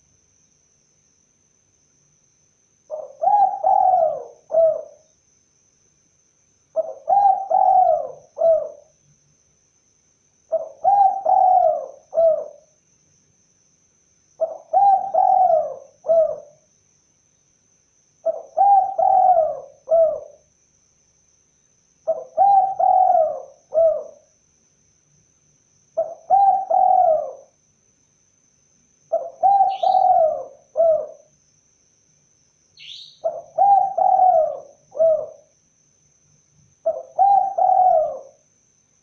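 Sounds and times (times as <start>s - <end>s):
dove cooing: 2.9s - 5.0s, 6.8s - 8.9s, 10.5s - 12.7s, 14.4s - 16.6s, 18.2s - 20.4s, 22.1s - 24.3s, 26.0s - 27.6s, 29.1s - 31.3s, 32.8s - 35.5s, 36.8s - 38.4s.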